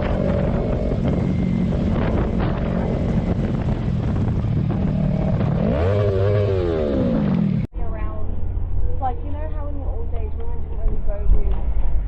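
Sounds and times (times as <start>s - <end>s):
car engine driving: 0.0s - 7.7s
road noise: 0.0s - 12.0s.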